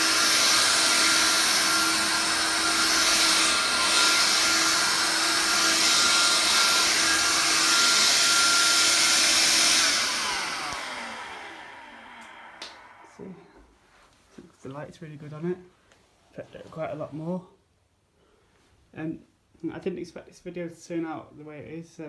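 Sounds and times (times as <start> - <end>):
stick vacuum running: 0.0 - 13.4
vacuum motor winding down: 0.0 - 13.4.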